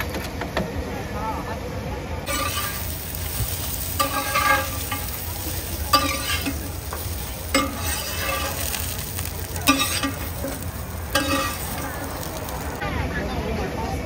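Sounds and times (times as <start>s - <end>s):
dumplings sizzling in a pan: 2.3s - 12.8s
metal spatula scraping: 2.3s - 12.8s.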